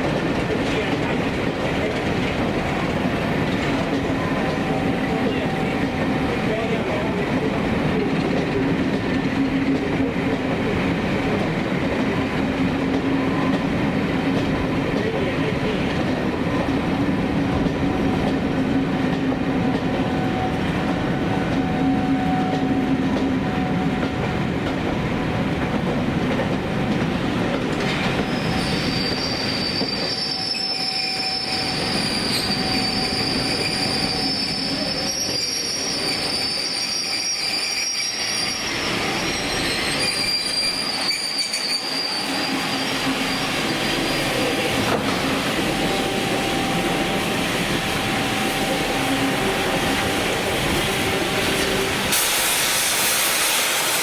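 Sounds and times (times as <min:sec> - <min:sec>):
train wheels rumbling: 0:00.0 - 0:54.0
steel wheel flange squeal: 0:28.2 - 0:45.0.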